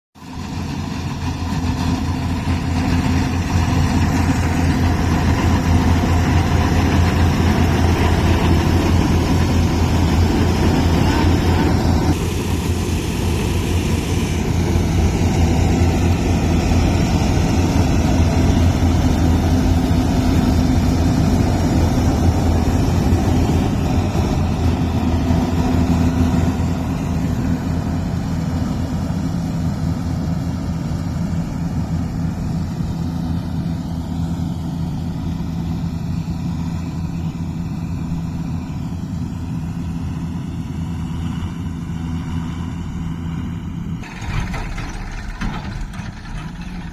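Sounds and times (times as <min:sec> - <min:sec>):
tractor diesel engine running: 0:00.2 - 0:46.9.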